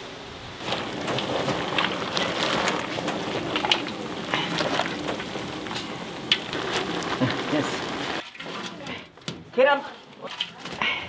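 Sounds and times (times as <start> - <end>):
food sizzling in hot oil: 0.6 - 9.1.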